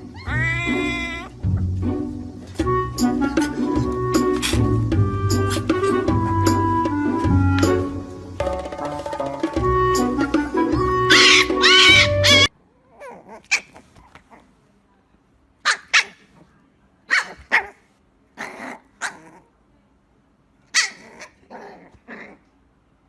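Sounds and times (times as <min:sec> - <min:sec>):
loud music: 0:01.8 - 0:12.5
dog barking: 0:15.6 - 0:16.3, 0:17.1 - 0:17.8.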